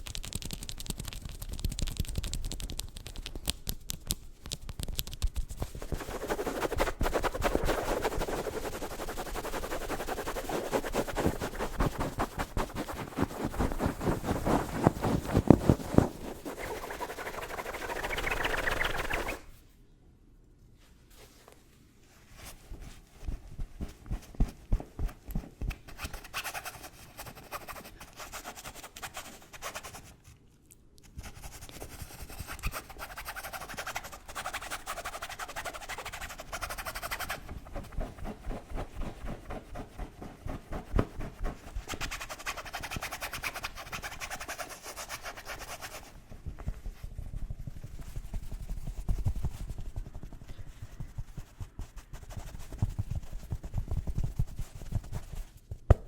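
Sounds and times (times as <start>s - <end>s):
scratching on objects: 0.0s - 19.5s, 31.2s - 56.0s.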